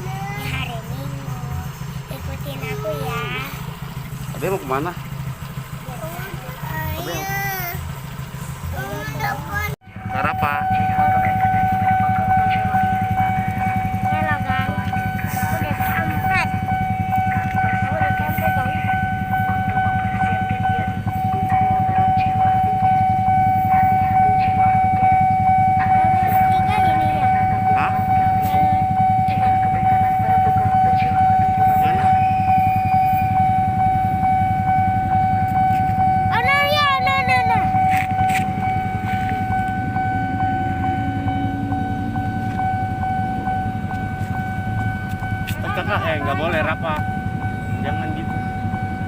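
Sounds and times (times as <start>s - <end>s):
freight train rumbling: 0.0s - 49.0s
high-pitched whine: 9.8s - 49.0s.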